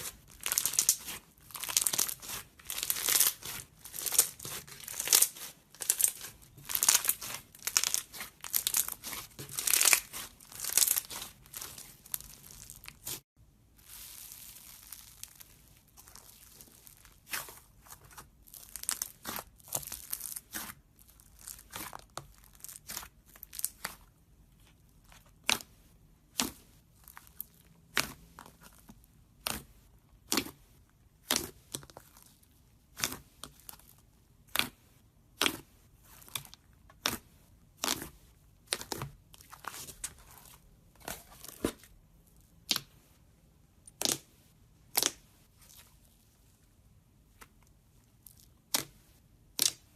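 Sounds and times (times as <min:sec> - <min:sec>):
slime crackling and popping: 0:00.0 - 0:13.2, 0:13.8 - 0:24.0, 0:43.8 - 0:46.0, 0:47.3 - 0:49.9.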